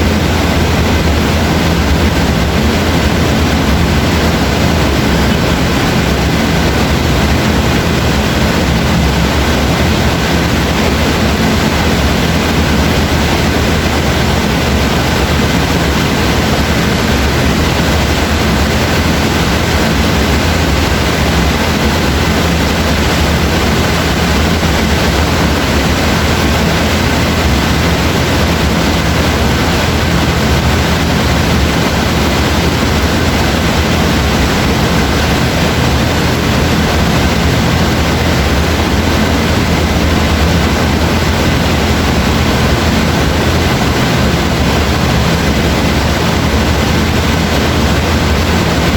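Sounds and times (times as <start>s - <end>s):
steady rain hiss: 0.0s - 48.9s.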